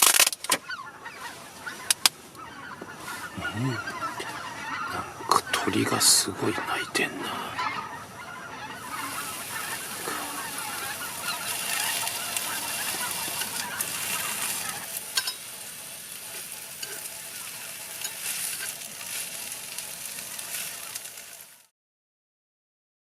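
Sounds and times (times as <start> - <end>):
flock of birds calling: 0.0 - 21.7
food sizzling: 8.7 - 21.7.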